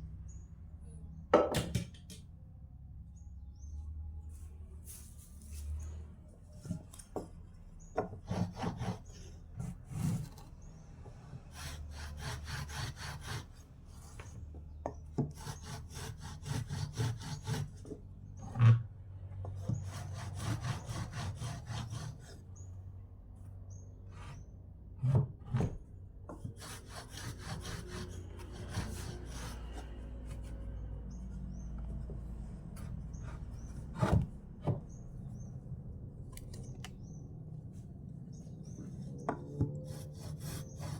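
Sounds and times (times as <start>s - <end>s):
sharp knocks on wood: 1.4s - 2.2s.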